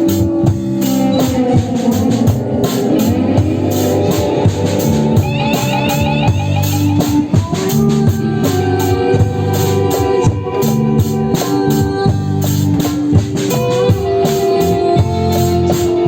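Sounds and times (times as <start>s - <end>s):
steady drum beat: 0.0s - 16.0s
sustained band chords: 0.0s - 16.0s.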